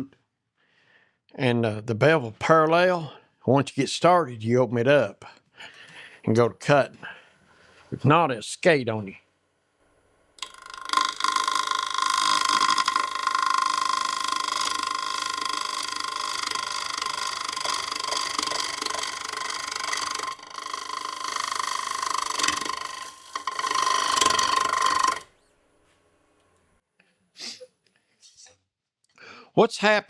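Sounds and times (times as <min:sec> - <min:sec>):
gouge scraping wood on lathe: 0:10.4 - 0:25.5.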